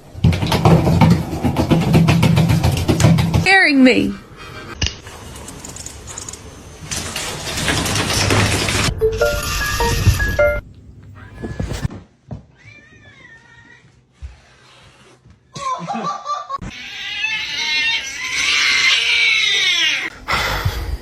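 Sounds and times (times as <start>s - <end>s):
cat yowling: 16.7s - 20.1s.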